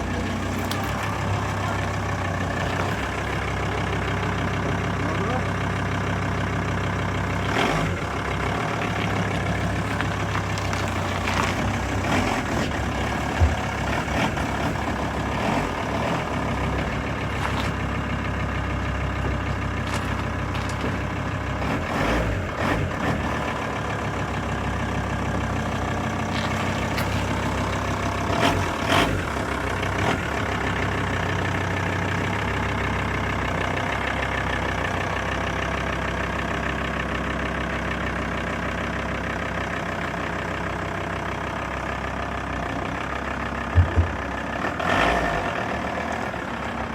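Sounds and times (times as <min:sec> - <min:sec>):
vehicle engine idling: 0:00.0 - 0:46.9
short knocks and clunks: 0:09.8 - 0:15.3, 0:43.7 - 0:44.4.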